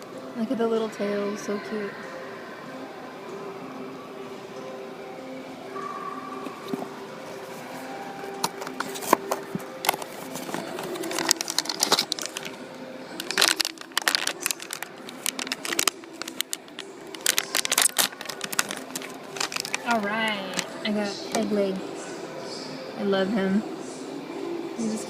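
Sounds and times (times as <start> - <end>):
packaging crinkling and tearing: 8.3 - 20.7.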